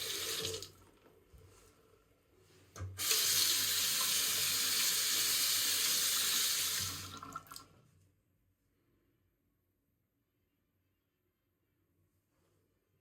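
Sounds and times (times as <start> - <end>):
tap water running into sink: 0.0 - 0.8, 2.8 - 7.7.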